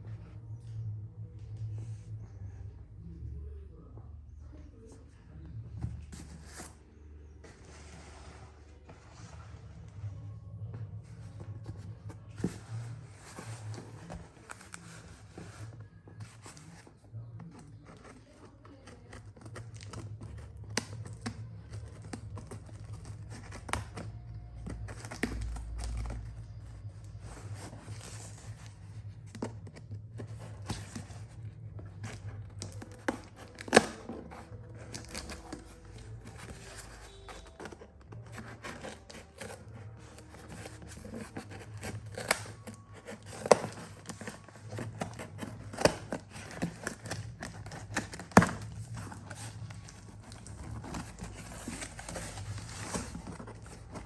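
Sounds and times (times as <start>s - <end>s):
packaging being cut and torn: 32.0s - 54.0s.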